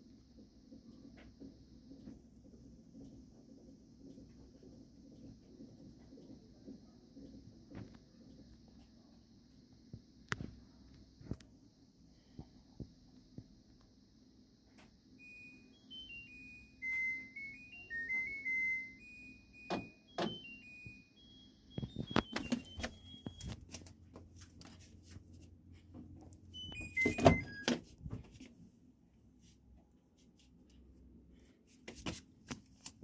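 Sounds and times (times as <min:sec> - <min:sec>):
washing machine beeper melody: 0:15.0 - 0:23.8, 0:26.4 - 0:28.3.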